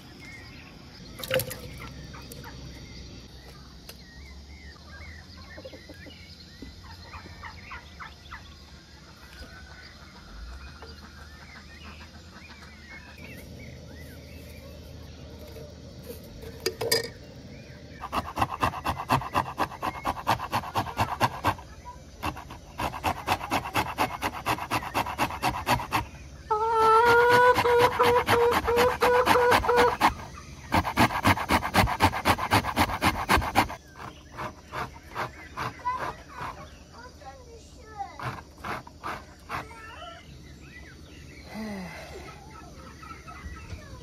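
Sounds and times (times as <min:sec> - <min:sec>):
faint poultry calls: 0:25.6 - 0:31.5.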